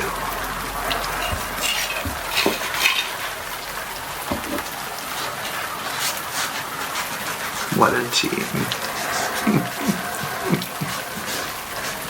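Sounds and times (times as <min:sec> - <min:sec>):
steady hiss: 0:00.0 - 0:12.0
small hard objects clinking: 0:00.9 - 0:03.2.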